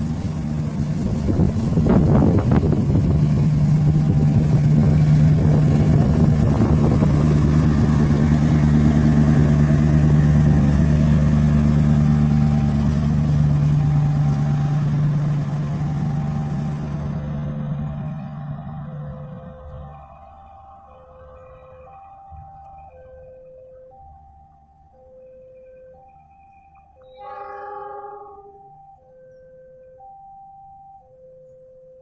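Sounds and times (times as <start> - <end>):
locomotive engine running loud: 0.0 - 23.0.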